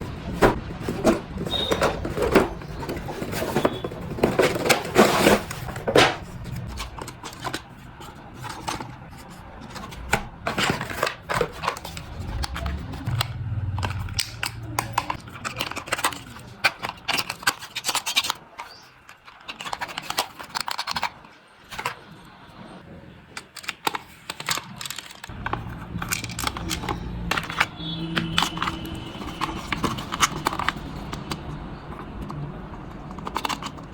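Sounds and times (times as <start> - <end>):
packaging rustling: 0.0 - 22.3, 23.4 - 33.9
cardboard and plastic scraping: 0.0 - 33.9
cardboard tearing: 0.4 - 7.4.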